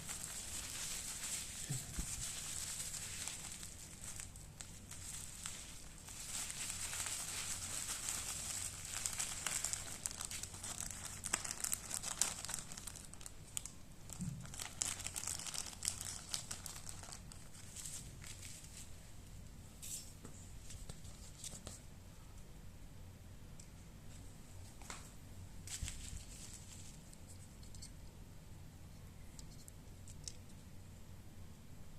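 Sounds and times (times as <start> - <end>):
packaging crinkling: 0.0 - 18.9, 25.6 - 27.2.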